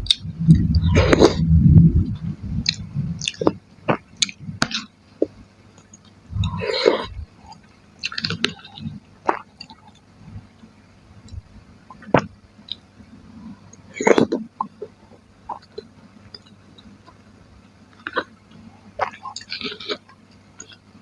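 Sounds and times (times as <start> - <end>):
person chewing food: 0.0 - 10.1, 13.6 - 17.2, 17.9 - 21.0.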